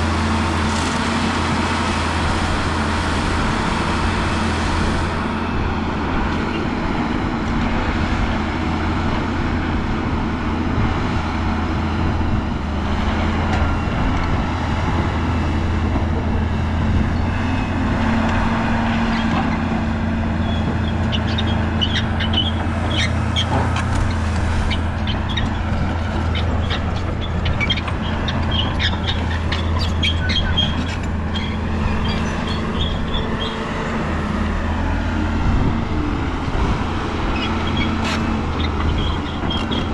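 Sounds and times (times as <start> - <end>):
excavator diesel engine running: 0.0 - 39.9
sharp clicks and squeaks: 20.4 - 33.6, 37.4 - 39.9.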